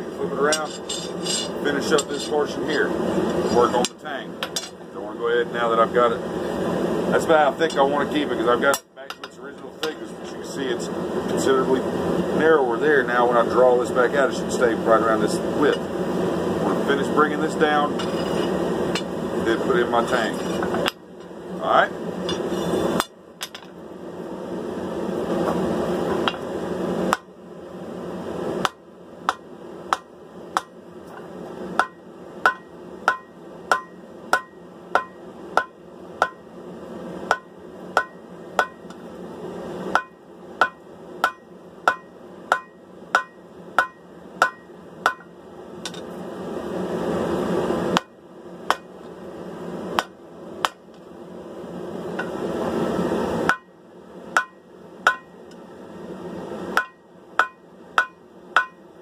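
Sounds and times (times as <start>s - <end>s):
hammer striking steel on anvil: 0.4s - 2.4s, 28.6s - 30.8s, 31.8s - 36.4s, 37.3s - 39.0s, 39.9s - 46.1s, 48.7s - 48.9s, 50.0s - 50.8s, 53.5s - 53.7s, 54.4s - 55.4s, 56.8s - 58.8s.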